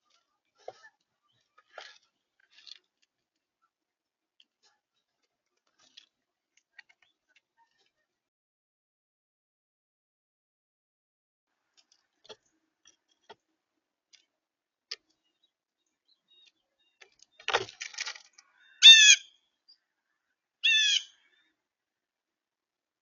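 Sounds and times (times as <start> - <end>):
bird calls: 15.2 - 17.7, 18.3 - 21.5.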